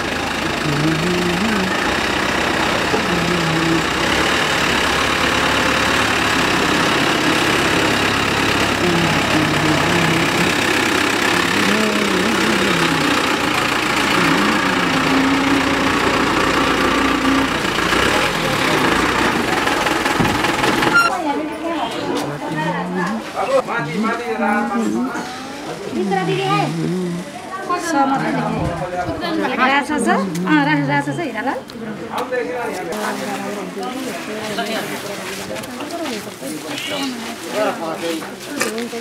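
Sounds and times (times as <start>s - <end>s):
faint voices: 0.0s - 4.3s, 6.6s - 20.1s, 21.0s - 39.0s
truck engine running: 0.0s - 21.1s, 22.3s - 29.0s.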